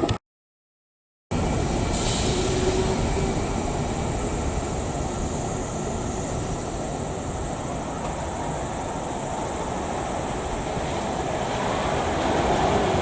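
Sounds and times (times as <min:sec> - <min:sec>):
train wheels rumbling: 0:01.3 - 0:13.0
high hiss: 0:01.7 - 0:11.1.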